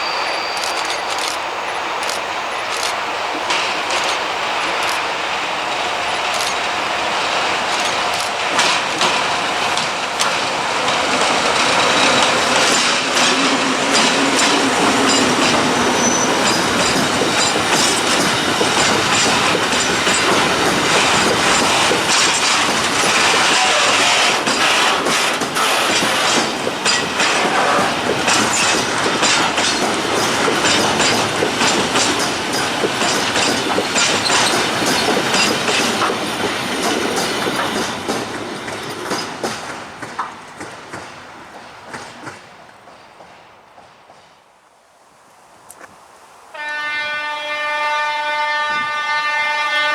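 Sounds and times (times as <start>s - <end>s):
wheel squeal: 0.0s - 2.9s, 14.0s - 18.1s
wheels clattering over rail joints: 0.0s - 44.3s.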